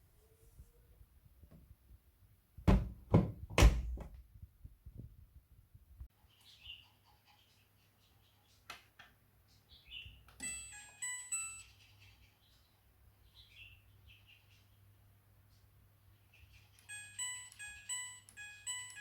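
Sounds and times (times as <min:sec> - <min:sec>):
electronic beep melodies: 0:10.4 - 0:11.7, 0:16.9 - 0:19.0.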